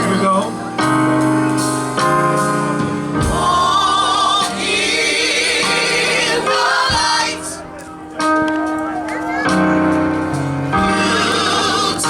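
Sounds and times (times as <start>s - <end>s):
gospel vocal group singing: 1.7s - 8.8s, 9.5s - 12.0s.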